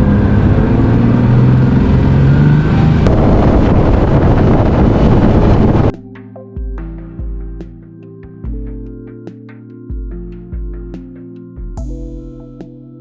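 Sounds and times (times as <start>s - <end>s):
wind rushing on microphone: 0.0s - 6.0s.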